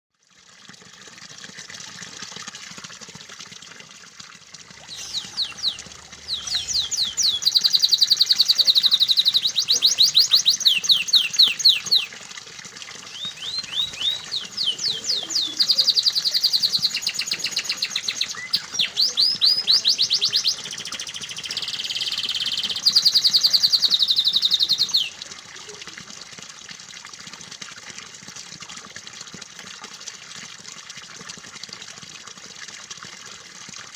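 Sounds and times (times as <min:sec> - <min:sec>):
running water: 0:00.2 - 0:33.9
canary singing in rapid trills: 0:04.9 - 0:12.1, 0:13.1 - 0:25.2.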